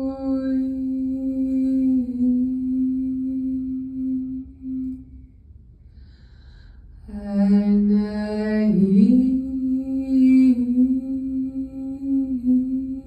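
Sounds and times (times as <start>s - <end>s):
person toning sustained notes: 0.0s - 5.3s.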